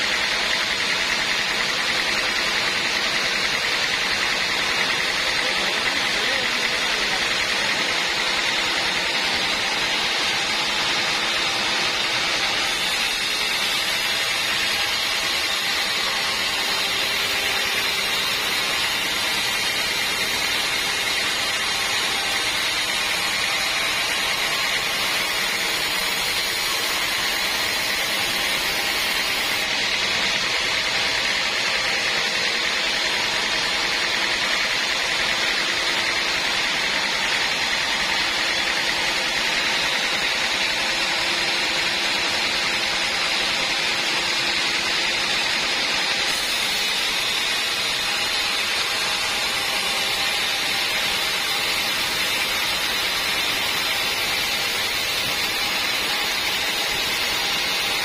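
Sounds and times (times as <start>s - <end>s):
band saw hissing: 0.0s - 41.5s.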